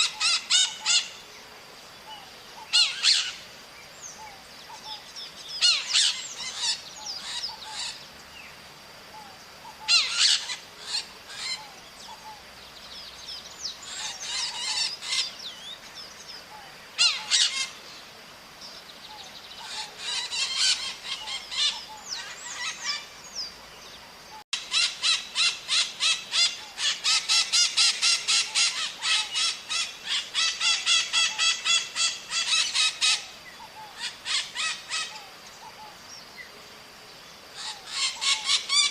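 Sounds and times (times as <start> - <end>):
small parrots calling: 0.0 - 1.2, 2.1 - 3.4, 5.6 - 8.0, 9.2 - 12.4, 13.7 - 15.7, 16.6 - 17.9, 19.1 - 23.1, 24.6 - 36.0, 37.6 - 38.9.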